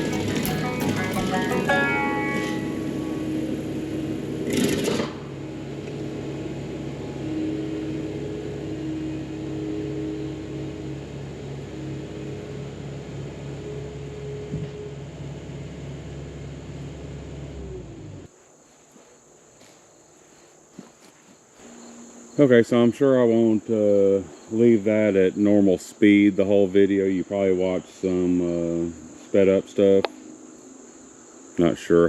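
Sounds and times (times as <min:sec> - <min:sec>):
stump grinder running: 0:00.0 - 0:14.5
crickets chirping: 0:00.0 - 0:32.0.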